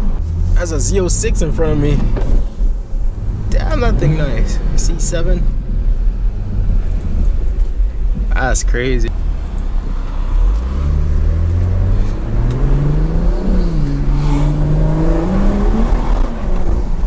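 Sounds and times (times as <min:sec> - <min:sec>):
car engine accelerating hard: 0:09.1 - 0:17.0.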